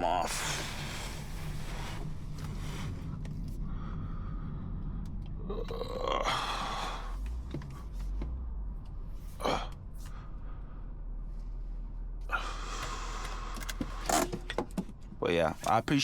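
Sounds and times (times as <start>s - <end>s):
low engine hum: 0.0s - 16.0s
microphone rubbing and scraping: 0.3s - 3.6s.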